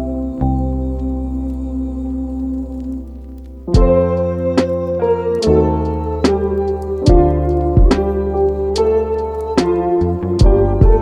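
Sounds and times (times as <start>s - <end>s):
instrumental background music: 0.0s - 11.0s
soft beat: 3.8s - 4.8s, 5.4s - 11.0s.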